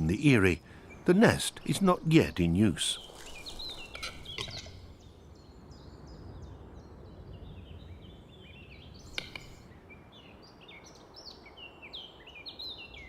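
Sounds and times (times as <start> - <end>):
small birds chirping: 0.0 - 13.0
sharp click: 9.1 - 9.5.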